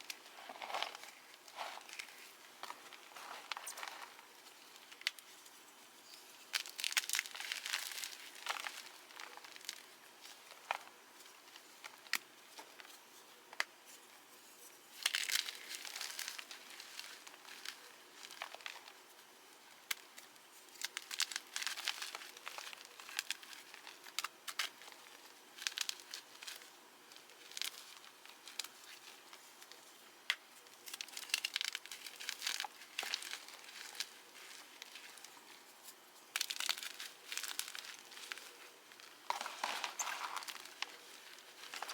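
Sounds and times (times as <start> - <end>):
chalk block crunching: 36.3 - 41.9.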